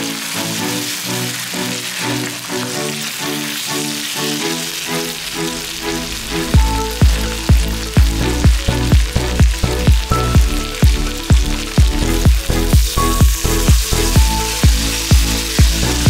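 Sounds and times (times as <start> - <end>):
food sizzling in oil: 0.0 - 16.0
background music with drum beat: 6.3 - 16.0.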